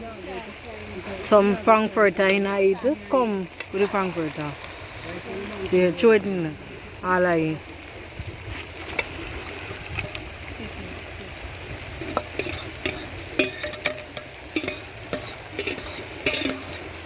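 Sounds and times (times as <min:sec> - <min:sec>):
spoon scraping a pot: 0:12.0 - 0:17.0.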